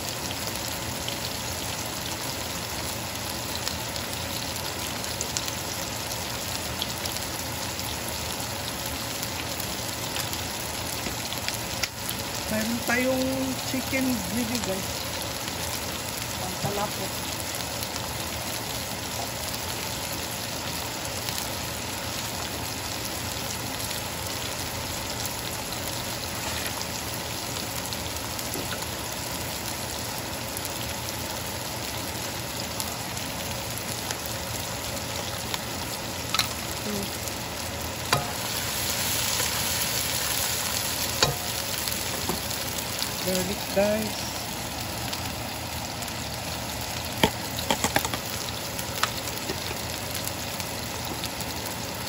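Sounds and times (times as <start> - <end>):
onions sizzling in oil: 0.0 - 52.0.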